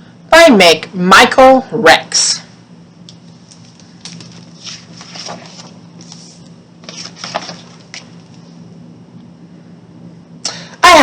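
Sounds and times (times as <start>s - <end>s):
book pages turning: 3.2s - 8.5s.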